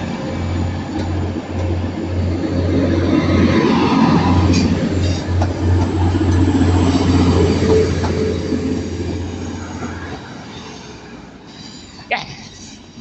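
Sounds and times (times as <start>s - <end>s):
diesel train engine drone: 0.0s - 13.0s.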